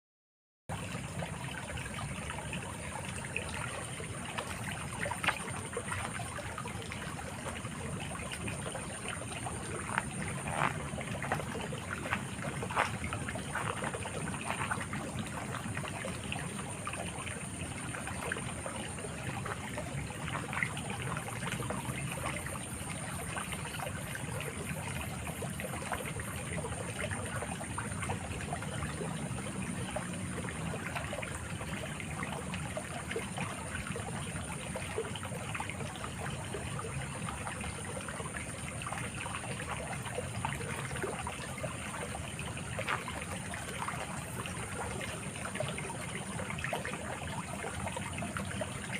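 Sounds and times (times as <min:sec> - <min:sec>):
stream burbling over stones: 0:00.7 - 0:48.9.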